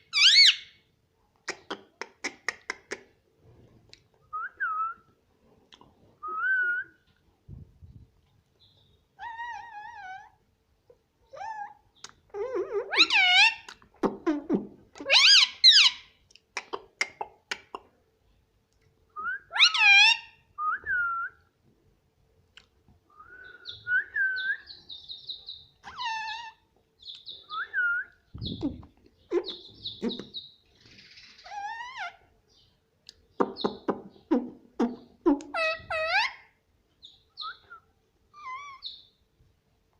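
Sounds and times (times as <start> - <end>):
parrot chirping whistles and chatter: 0.1 - 0.8, 27.2 - 32.2, 37.4 - 37.8, 38.4 - 39.1
parrot squawking: 0.1 - 0.8, 9.2 - 10.4, 11.4 - 16.1, 19.5 - 20.4, 25.8 - 26.6, 27.8 - 30.5, 31.4 - 32.2, 33.6 - 36.5, 38.4 - 39.1.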